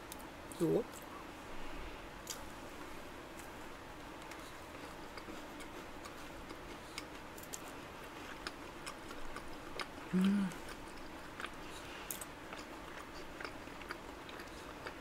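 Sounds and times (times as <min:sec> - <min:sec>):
low room hum: 0:00.0 - 0:15.0
person chewing: 0:04.2 - 0:15.0.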